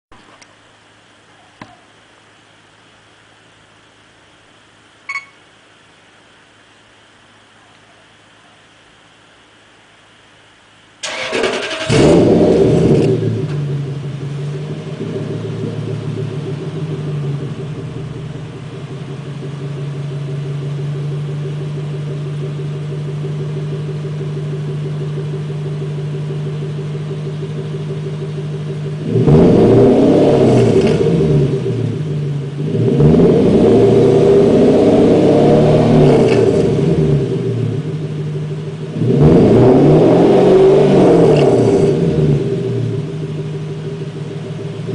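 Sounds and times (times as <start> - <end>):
car engine starting and idling: 10.7 - 44.9
car engine revving: 11.0 - 44.9.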